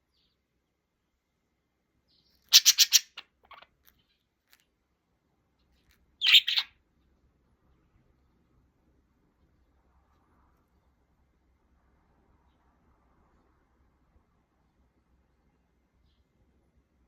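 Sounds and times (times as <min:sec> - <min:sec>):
small bird chirping: 0:00.0 - 0:00.5, 0:02.0 - 0:04.8, 0:05.5 - 0:06.8.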